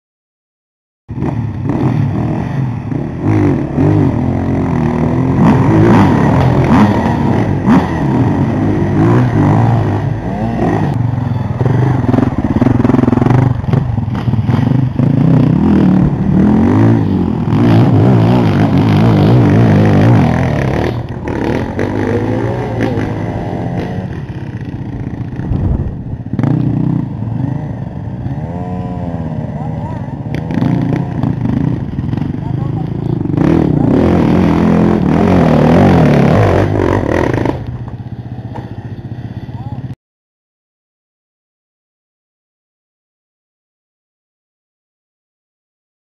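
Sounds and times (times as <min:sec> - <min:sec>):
dirt bike engines revving: 0:01.1 - 0:40.0.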